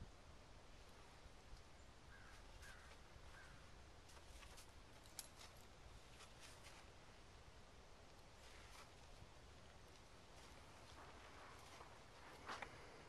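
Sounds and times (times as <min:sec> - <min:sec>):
faint short bird calls: 0:02.1 - 0:03.7.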